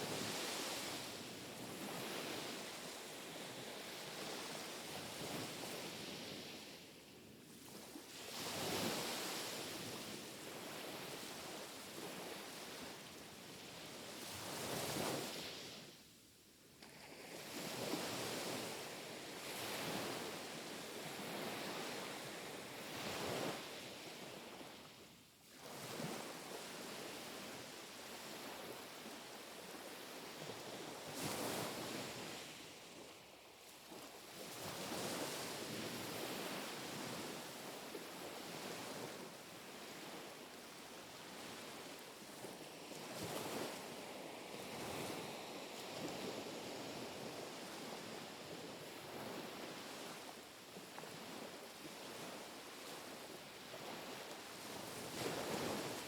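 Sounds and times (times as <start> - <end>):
small waves lapping on shore: 25.6 - 56.0.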